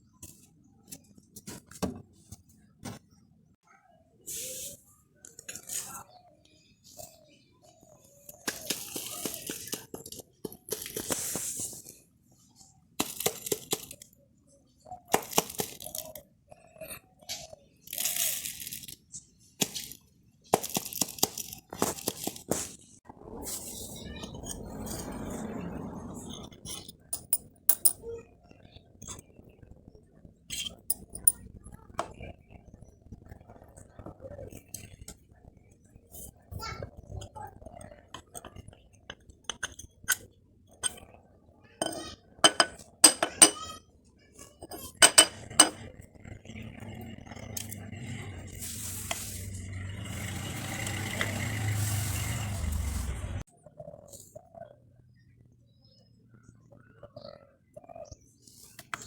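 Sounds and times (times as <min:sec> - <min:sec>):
metal tools clinking on workbench: 0:26.7 - 0:28.0, 0:41.8 - 0:43.7, 0:44.7 - 0:45.8.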